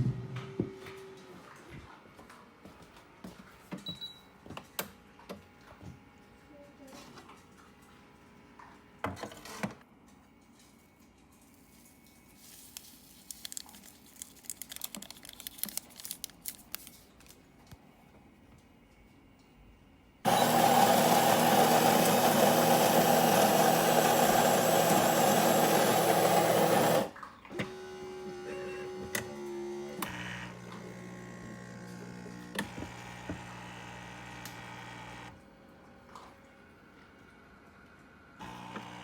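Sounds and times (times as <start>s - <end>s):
coffee grinder grinding beans: 20.3s - 27.1s, 30.1s - 35.3s, 38.4s - 39.0s.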